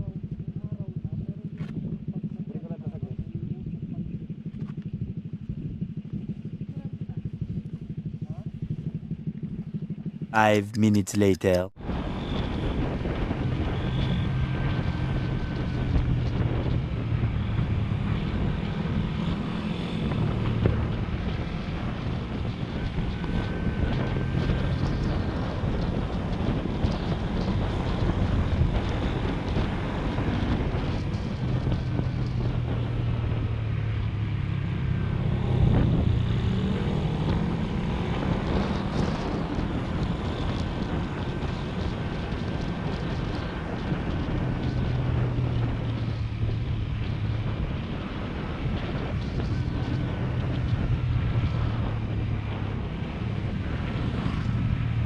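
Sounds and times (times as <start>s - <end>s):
wind rushing over microphone: 11.8s - 55.0s.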